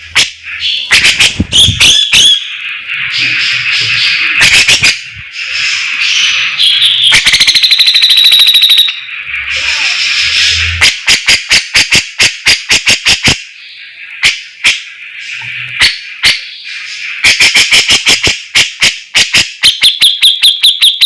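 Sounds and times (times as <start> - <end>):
songbird chattering song: 0.0 - 11.1, 13.2 - 18.6.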